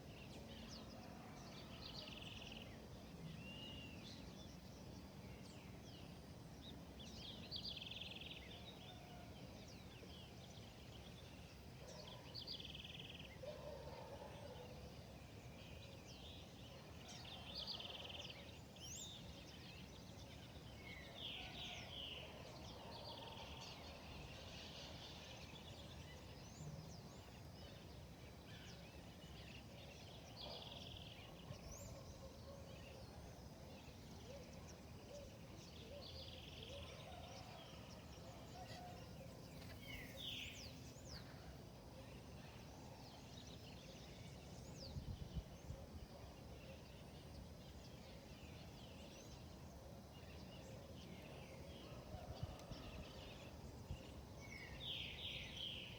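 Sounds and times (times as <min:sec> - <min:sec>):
background hiss: 0:38.4 - 0:51.9.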